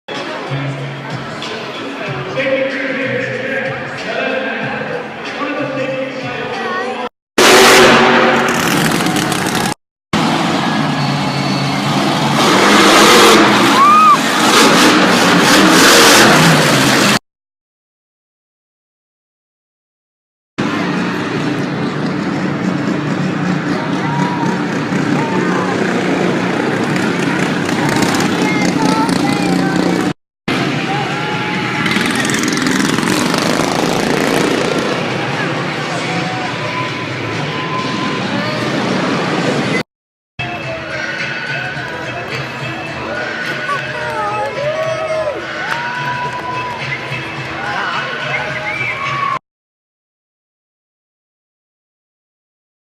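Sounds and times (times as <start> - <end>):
arena crowd noise: 0.1 - 16.8, 20.6 - 39.8, 40.4 - 49.4
monster truck engine running: 7.4 - 17.2, 20.6 - 39.8.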